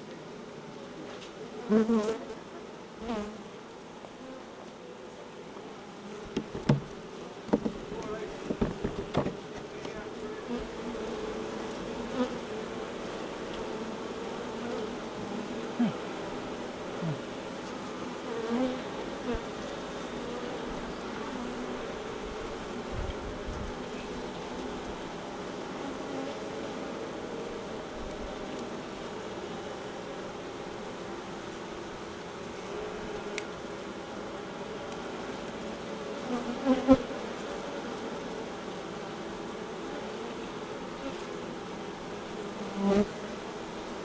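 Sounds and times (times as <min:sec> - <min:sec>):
honey bees buzzing: 0:00.0 - 0:44.0
single bees flying past: 0:00.9 - 0:44.0
soft knock: 0:06.2 - 0:10.0
low bumps: 0:06.2 - 0:10.1.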